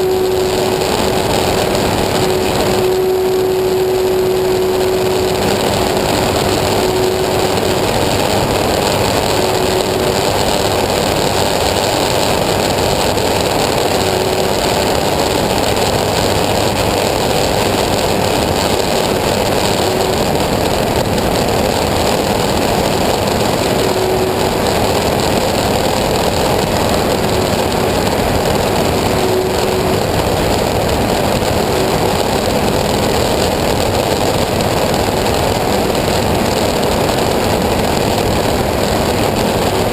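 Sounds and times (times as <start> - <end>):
faint tone: 0.0 - 11.8
aircraft engine running: 0.0 - 39.9.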